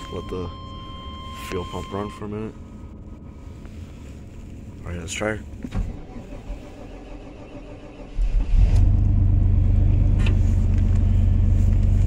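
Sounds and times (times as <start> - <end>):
van engine starting and idling: 2.4 - 12.0.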